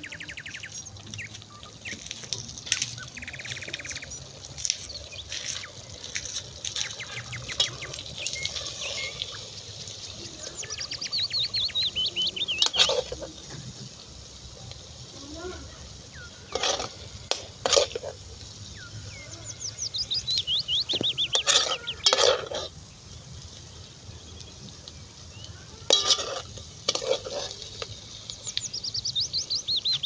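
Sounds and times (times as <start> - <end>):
small birds chirping: 0.0 - 30.0
warbled bird call: 18.7 - 22.4
rattling bird trills: 19.1 - 22.7.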